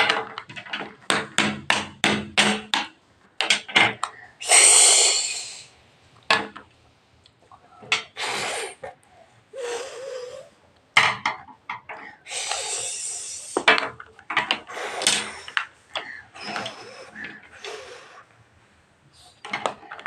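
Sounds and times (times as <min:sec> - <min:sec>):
bursts of hissing: 0:04.4 - 0:05.7, 0:12.2 - 0:13.7.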